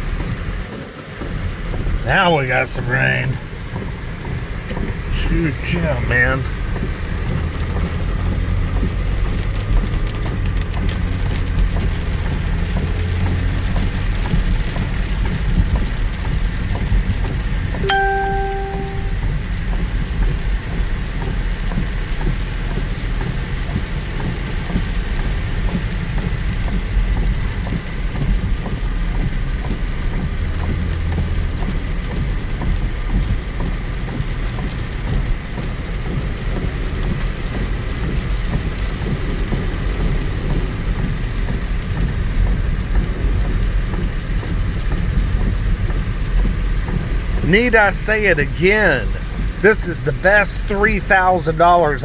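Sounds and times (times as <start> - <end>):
car low rumble: 0.0 - 52.0
rain pattering on car: 0.0 - 52.0.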